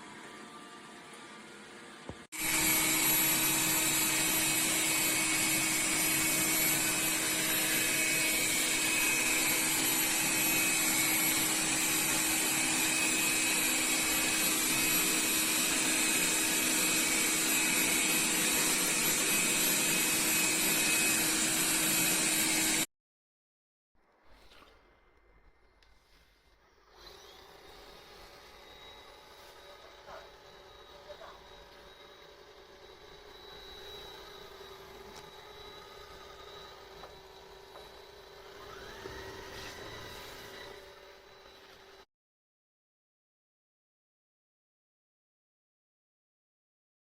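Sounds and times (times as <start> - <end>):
robot vacuum motor whirring: 2.2 - 22.9, 25.8 - 42.0.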